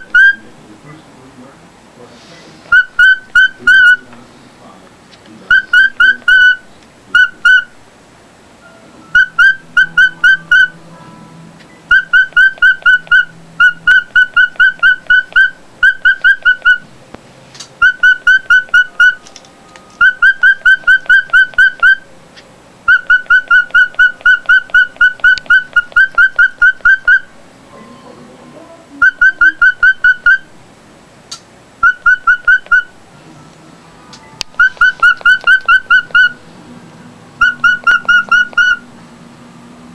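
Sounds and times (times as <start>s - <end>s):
bird whistled chirps: 0.0s - 0.4s, 2.7s - 4.0s, 5.5s - 7.7s, 9.1s - 10.8s, 11.9s - 16.9s, 17.8s - 19.2s, 20.0s - 22.1s, 22.9s - 27.4s, 29.0s - 30.5s, 31.8s - 32.9s, 34.6s - 36.4s, 37.4s - 38.8s.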